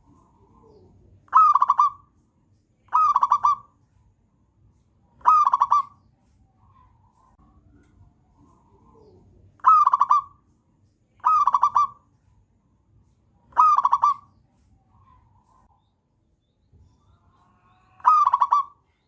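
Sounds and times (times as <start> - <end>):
dove staccato cooing: 0.0 - 2.1, 2.9 - 3.7, 5.2 - 6.0, 8.4 - 10.4, 11.2 - 12.0, 13.5 - 14.3, 18.0 - 18.8.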